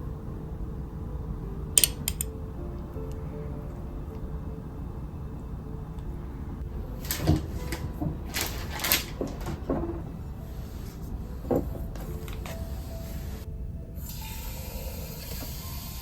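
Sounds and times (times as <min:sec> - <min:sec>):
low background hum: 0:00.0 - 0:15.8.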